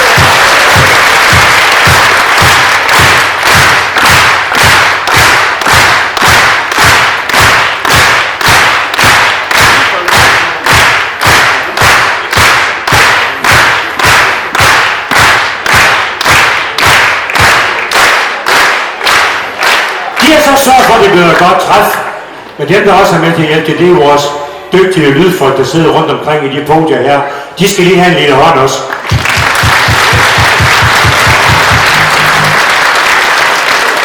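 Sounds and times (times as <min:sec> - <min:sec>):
audience clapping in unison: 0:00.0 - 0:22.1, 0:28.9 - 0:34.0.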